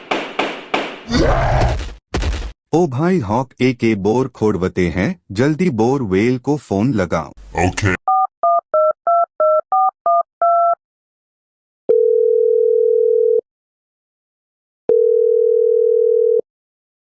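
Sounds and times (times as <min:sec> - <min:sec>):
phone keypad dialing beeps: 0:08.1 - 0:10.8
phone ringback tone: 0:11.9 - 0:13.4, 0:14.9 - 0:16.4.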